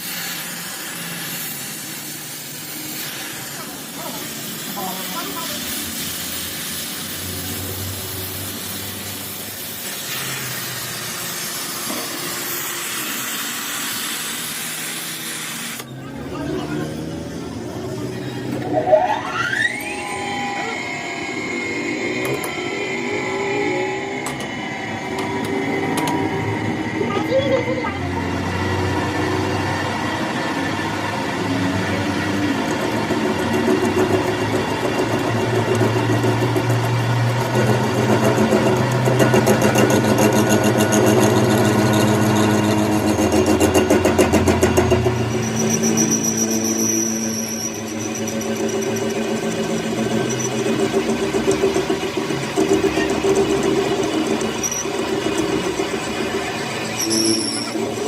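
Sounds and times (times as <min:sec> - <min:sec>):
machine humming and pulsing: 0:00.0 - 0:58.0
power tool motor whine: 0:00.0 - 0:58.0.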